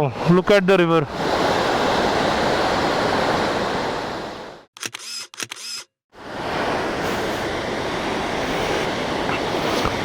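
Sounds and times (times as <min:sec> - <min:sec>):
camera shutter firing: 0:04.8 - 0:05.9
rushing river water: 0:06.2 - 0:10.0.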